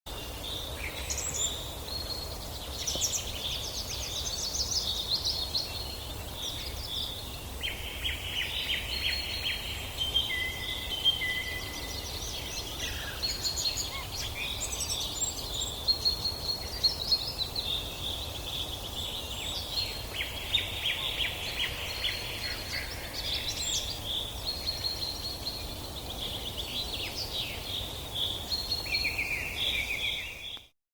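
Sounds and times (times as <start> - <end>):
birds chirping and trilling: 0.1 - 30.7.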